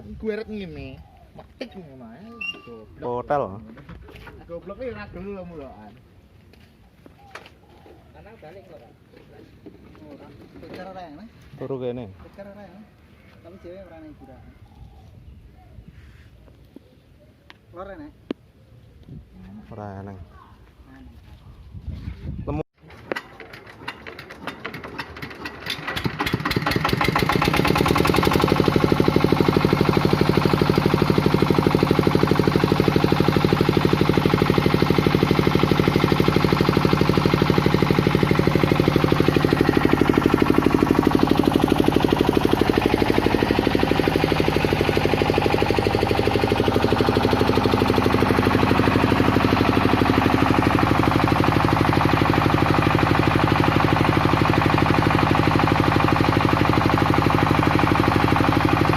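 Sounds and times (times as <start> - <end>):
diesel generator engine running: 23.0 - 58.9.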